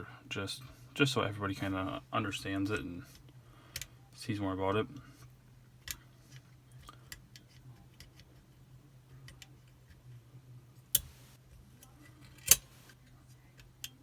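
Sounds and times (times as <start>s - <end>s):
small metallic clicks and taps: 10.9s - 13.0s.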